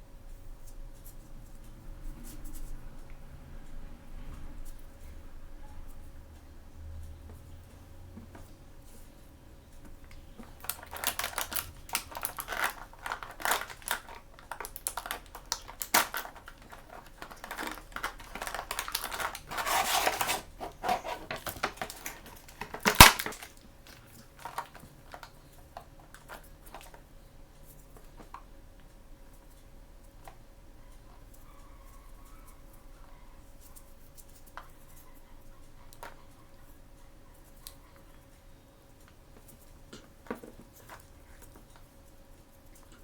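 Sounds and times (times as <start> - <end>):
packaging clicks and crinkles: 10.1 - 27.0.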